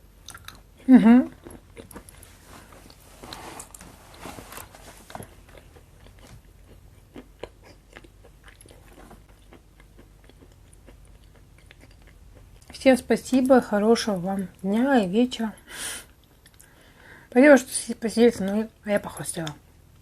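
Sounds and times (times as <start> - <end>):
person chewing food: 0.1 - 12.8, 16.1 - 17.0.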